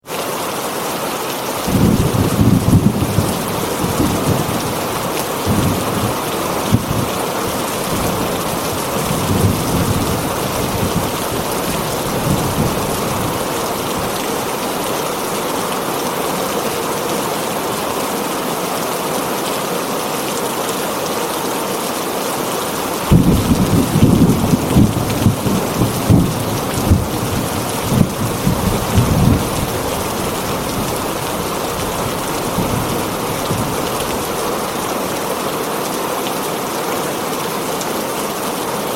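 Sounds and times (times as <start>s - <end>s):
heavy rain on a tin roof: 0.0s - 38.9s
thunder rumbling: 1.6s - 15.3s, 23.0s - 34.9s.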